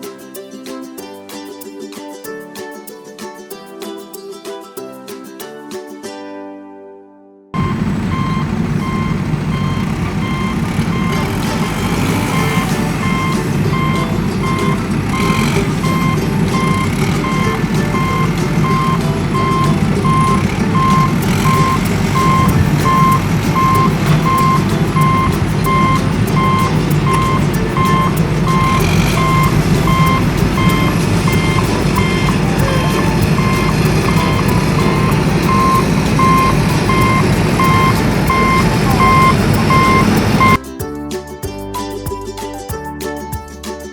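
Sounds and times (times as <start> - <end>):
engine rumbling: 7.6 - 40.6
reversing alarm beeping: 7.6 - 40.6.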